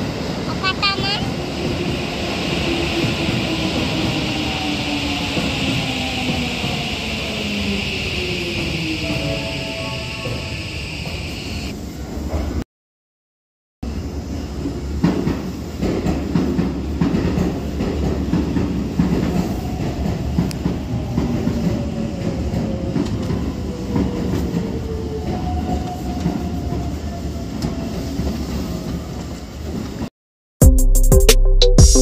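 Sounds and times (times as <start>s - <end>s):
electric train rumbling past: 0.0s - 12.6s, 13.8s - 30.1s.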